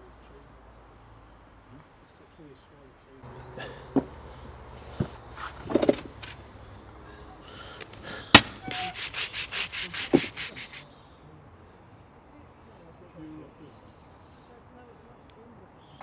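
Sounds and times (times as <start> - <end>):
scraping strokes on hard surface: 4.0 - 6.9, 7.8 - 10.8
sharp click: 7.8 - 10.8
knocks: 7.9 - 9.0.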